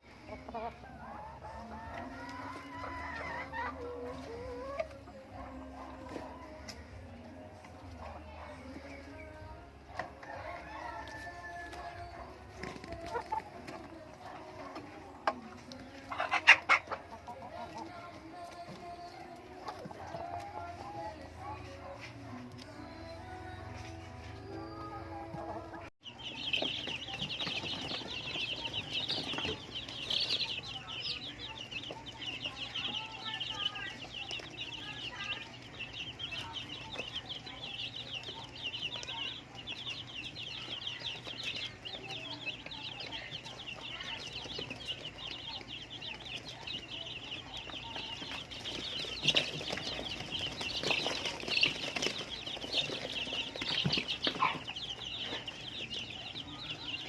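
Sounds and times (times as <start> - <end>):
chickens clucking: 0.0 - 57.0
high-pitched chatter of rapid calls: 11.8 - 22.1, 24.9 - 57.0.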